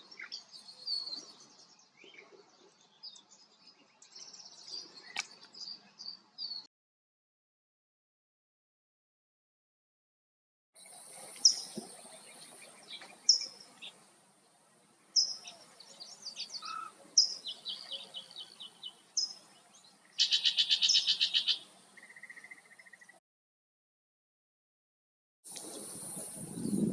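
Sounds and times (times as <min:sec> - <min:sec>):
songbirds singing: 0:00.0 - 0:06.7, 0:10.8 - 0:23.2, 0:25.5 - 0:26.9
bird trill: 0:15.2 - 0:19.5, 0:20.2 - 0:23.2.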